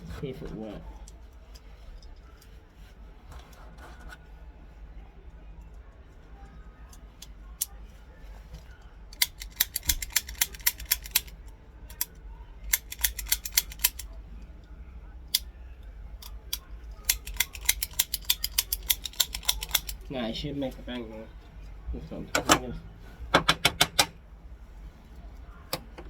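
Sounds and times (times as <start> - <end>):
toy cap gun mechanism clicking: 9.2 - 14.1, 16.2 - 20.1.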